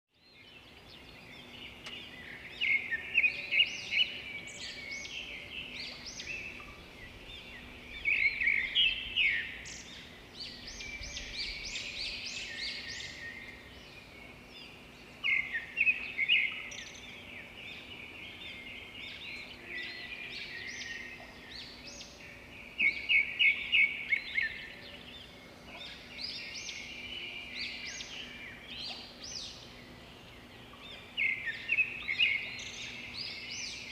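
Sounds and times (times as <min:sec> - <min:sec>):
small birds chirping and singing: 0:00.1 - 0:33.9.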